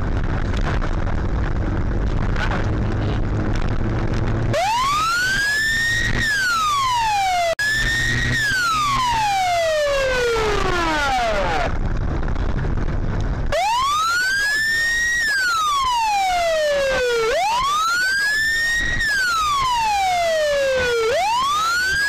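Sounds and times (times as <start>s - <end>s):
road and engine rumble: 0.0s - 22.0s
siren wailing: 4.4s - 11.8s, 13.5s - 22.0s.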